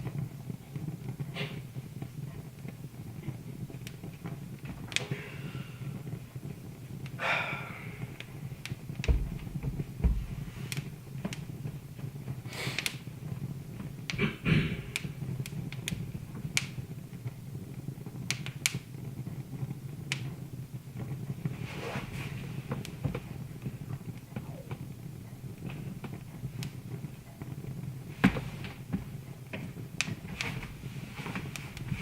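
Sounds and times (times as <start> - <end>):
wood fire crackling: 0.0 - 32.0
dull low thuds: 8.8 - 10.7.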